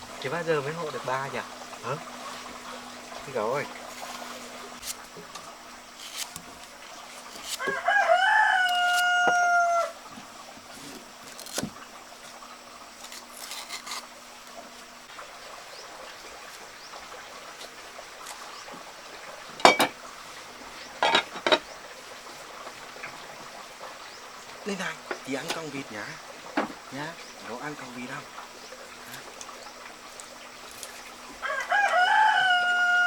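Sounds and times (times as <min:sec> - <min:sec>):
rooster crowing: 0:07.5 - 0:10.1, 0:31.3 - 0:33.0.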